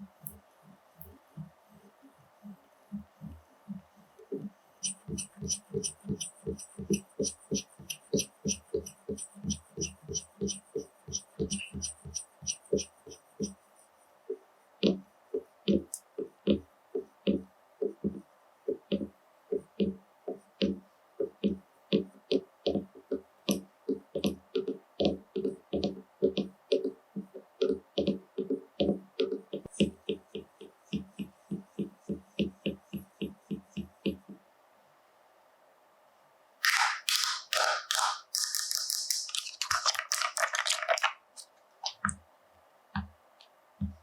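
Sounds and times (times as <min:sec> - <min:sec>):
soft dull taps with faint clicks: 0:42.9 - 0:44.0.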